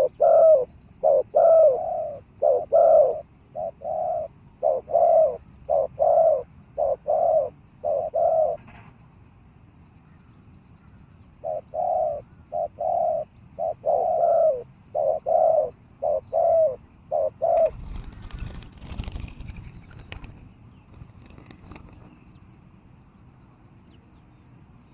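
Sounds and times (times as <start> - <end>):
dove cooing: 0.0 - 8.7, 11.4 - 20.3.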